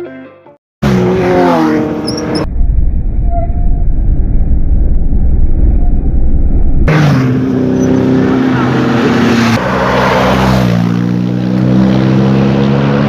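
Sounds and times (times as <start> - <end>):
vehicle low rumble: 2.0 - 8.2.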